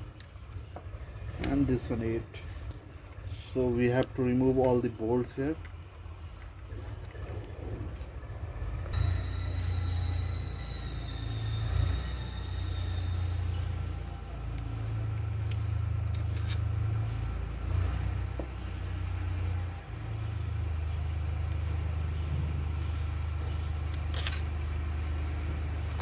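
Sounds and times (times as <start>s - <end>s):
steady low hum: 0.0s - 26.0s
metallic clinks of bolts and wrench: 13.5s - 17.9s, 21.0s - 25.2s.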